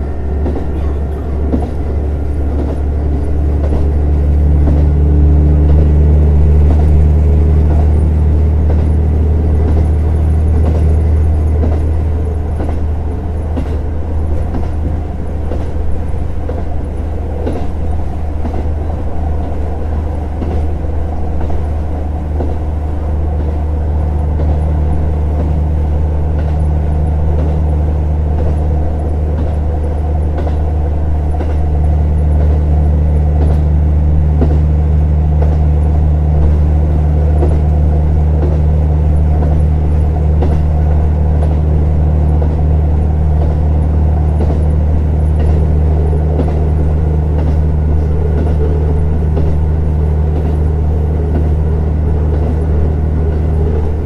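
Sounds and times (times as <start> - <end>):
diesel engine drone: 0.0 - 54.0
train rail noise: 0.0 - 54.0
faint clicks from the track: 24.4 - 34.7, 35.3 - 54.0.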